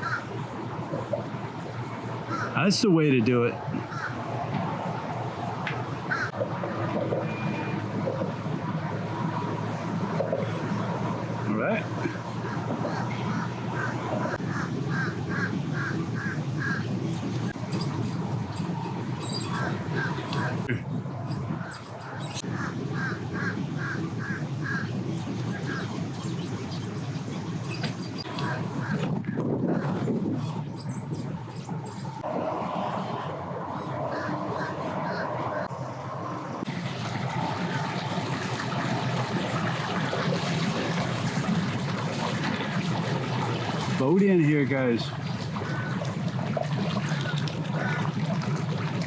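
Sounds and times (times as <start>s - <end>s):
bird calling: 0.0s - 0.5s, 2.2s - 2.8s, 3.7s - 4.2s, 6.1s - 6.4s, 12.0s - 32.3s, 33.7s - 36.5s, 44.0s - 48.6s
water washing: 0.0s - 35.8s, 36.6s - 49.0s
boat motor running: 0.0s - 49.0s
outdoor noise: 0.0s - 49.0s.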